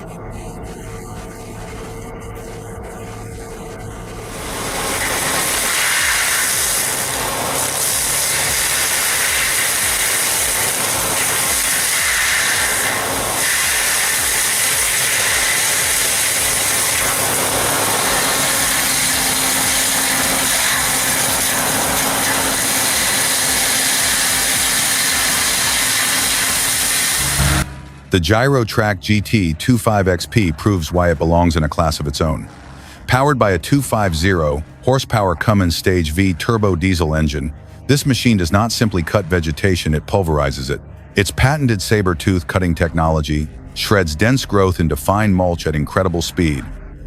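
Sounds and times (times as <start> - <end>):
faint steady hum: 0.0 - 20.9
diesel machinery running: 0.0 - 47.0.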